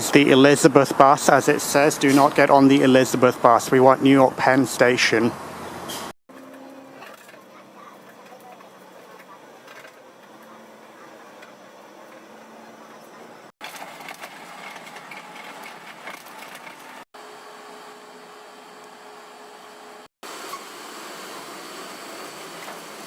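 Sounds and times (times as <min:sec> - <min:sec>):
bus engine and road noise: 0:00.0 - 0:17.1.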